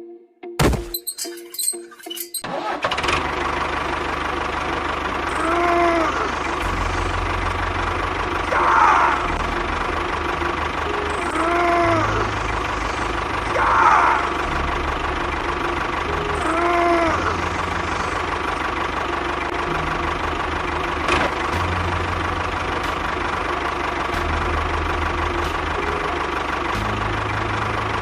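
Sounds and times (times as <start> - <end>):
motor humming: 4.2 - 28.0.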